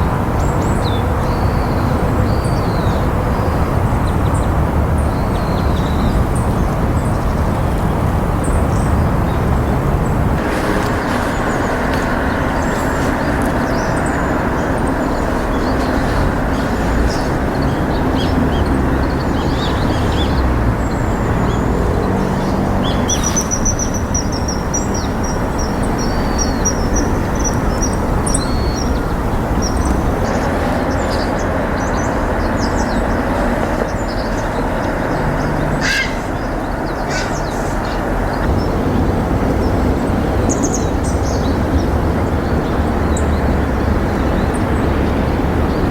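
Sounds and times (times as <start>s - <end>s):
loud background rumble: 0.0s - 45.9s
wild bird calls: 8.5s - 45.9s
high fast bird trill: 35.4s - 38.1s.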